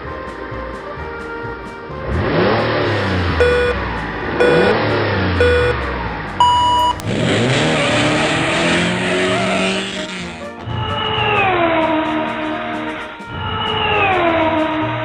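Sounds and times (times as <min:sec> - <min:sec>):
race car engine revving: 0:02.0 - 0:10.4
long higher beep: 0:03.4 - 0:03.8, 0:04.4 - 0:04.8, 0:05.4 - 0:05.8, 0:06.4 - 0:07.0
short countdown beeps: 0:03.4 - 0:03.8, 0:04.4 - 0:04.8, 0:05.4 - 0:05.8, 0:06.4 - 0:07.0.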